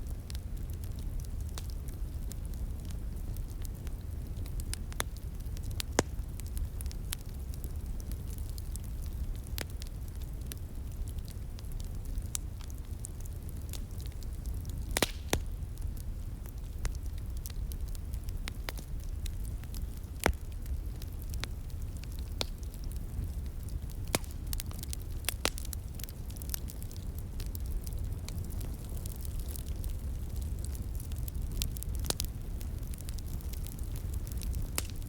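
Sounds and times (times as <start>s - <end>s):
wood fire crackling and popping: 0.0s - 35.0s.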